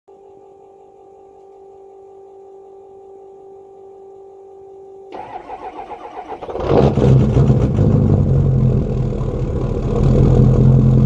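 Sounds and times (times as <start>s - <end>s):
faint steady hum: 0.1s - 6.4s
engine starter cranking: 5.1s - 7.6s.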